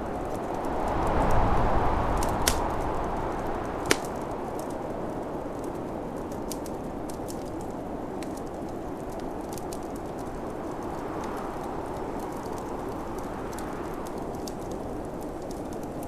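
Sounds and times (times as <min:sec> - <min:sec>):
snowstorm wind rushing: 0:00.0 - 0:08.7
wood fire crackling and popping: 0:00.0 - 0:16.0.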